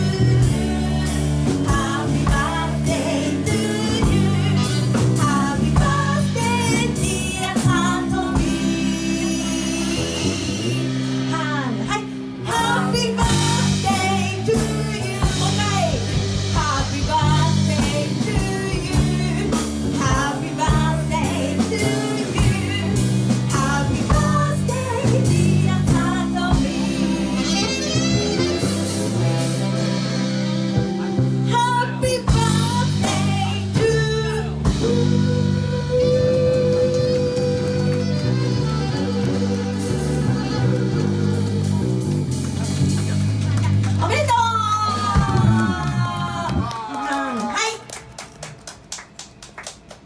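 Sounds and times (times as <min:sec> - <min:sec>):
person singing: 0:00.0 - 0:28.4, 0:31.0 - 0:42.1
live band music: 0:00.0 - 0:48.0.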